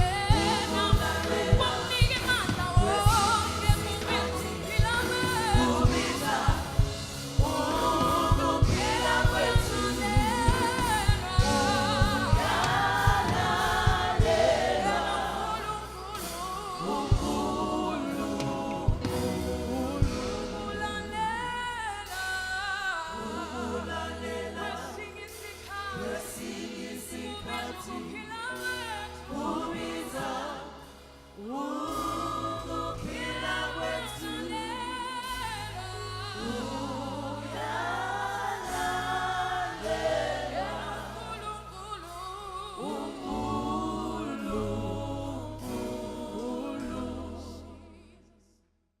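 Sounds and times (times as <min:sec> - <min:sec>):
held bass notes: 0:00.0 - 0:25.0
gospel singing voices: 0:00.0 - 0:49.0.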